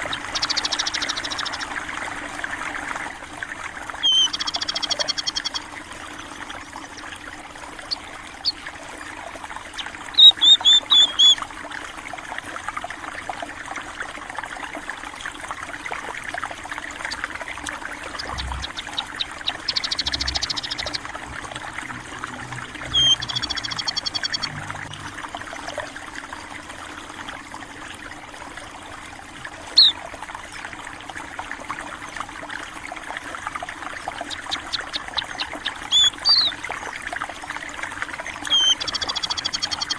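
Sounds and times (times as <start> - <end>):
small birds chirping: 0.0 - 1.8, 4.0 - 5.7, 9.7 - 11.4, 18.1 - 25.0, 29.8 - 30.0, 34.1 - 36.6, 38.4 - 39.9
water trickling and flowing: 0.0 - 39.9.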